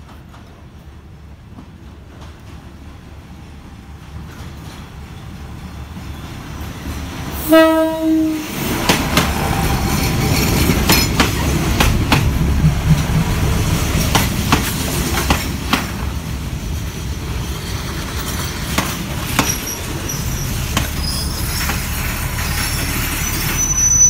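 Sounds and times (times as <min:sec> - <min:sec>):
train low rumble: 0:00.0 - 0:24.0
train wheels clacking over joints: 0:08.7 - 0:16.2, 0:17.6 - 0:23.6
high squeal of wheels: 0:19.3 - 0:24.0.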